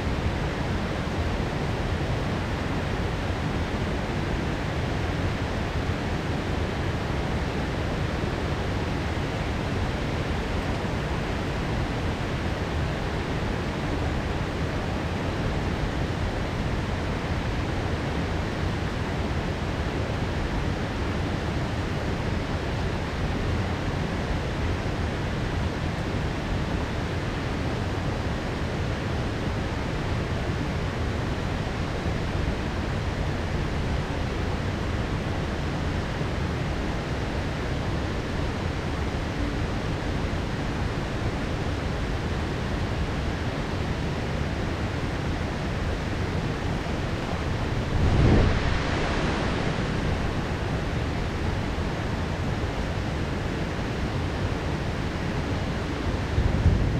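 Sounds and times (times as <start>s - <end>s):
heavy rain pouring: 45.2s - 54.1s.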